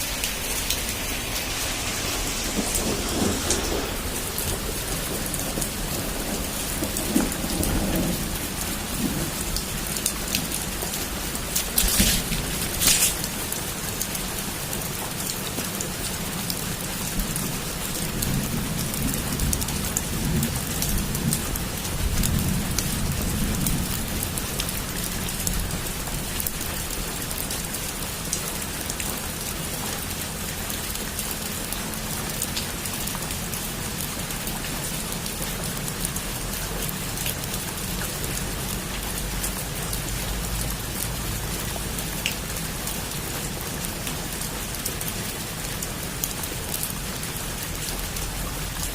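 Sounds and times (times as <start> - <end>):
low rumble: 0.0 - 13.5
heavy rain on rooftop: 0.0 - 48.9.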